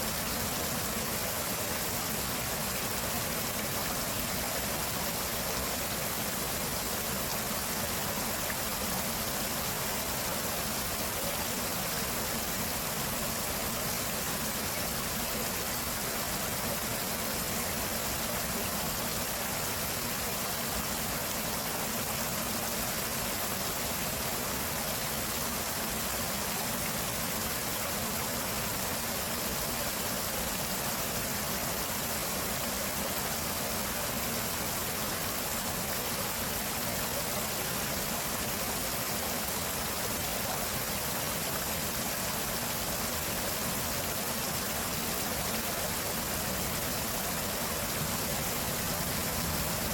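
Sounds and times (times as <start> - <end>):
stream rushing: 0.0 - 49.9.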